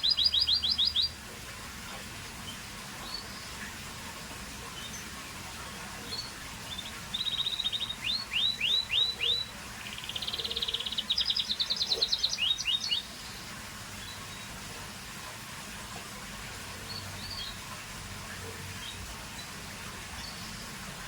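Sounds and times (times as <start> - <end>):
canary singing trills: 0.0 - 1.2, 6.0 - 14.5.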